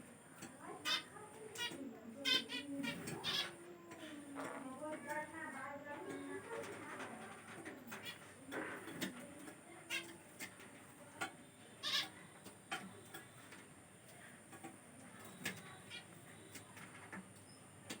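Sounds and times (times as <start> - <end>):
parrot chirps and calls: 0.7 - 3.7, 9.8 - 10.3, 11.8 - 13.3, 15.2 - 16.8.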